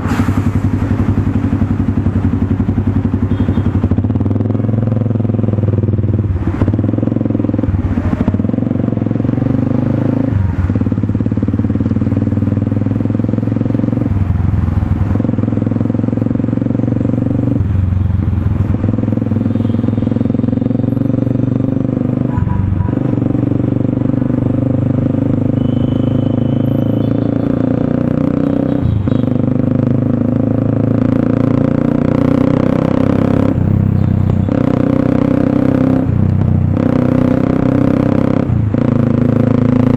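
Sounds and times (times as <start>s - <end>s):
single-cylinder motorcycle engine running: 0.0s - 39.9s.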